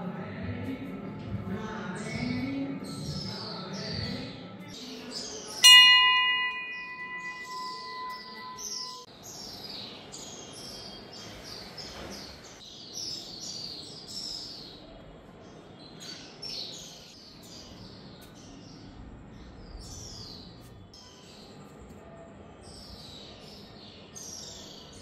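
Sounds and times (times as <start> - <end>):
faint background noise: 0.0 - 25.0
small birds chirping: 1.5 - 25.0.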